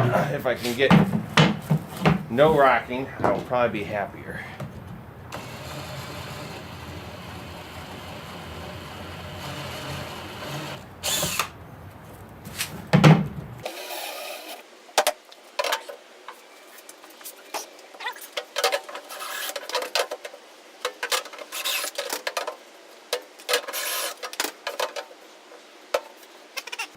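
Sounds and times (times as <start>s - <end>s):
power drill drilling wood: 5.3s - 11.5s, 13.6s - 14.6s.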